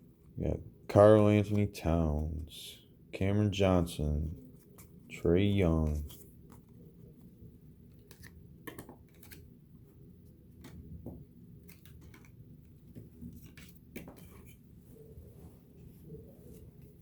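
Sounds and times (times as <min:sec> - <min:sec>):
trading cards flipped by hand: 0:07.8 - 0:09.6, 0:10.5 - 0:14.6.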